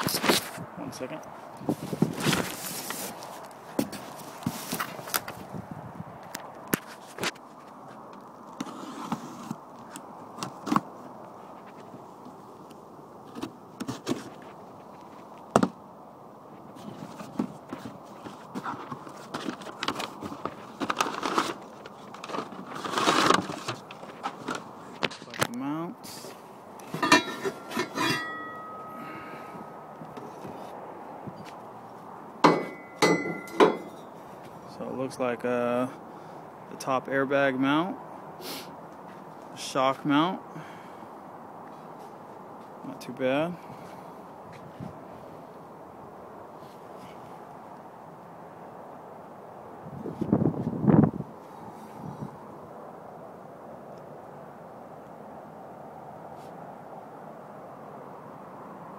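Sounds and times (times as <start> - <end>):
steel brackets clanking: 26.8 - 29.0, 32.4 - 34.1
knocks and clicks of parts handled: 32.4 - 34.0.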